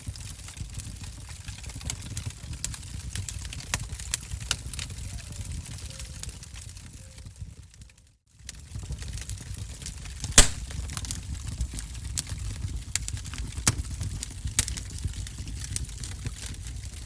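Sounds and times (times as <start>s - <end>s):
fire crackling and popping: 10.4s - 10.9s.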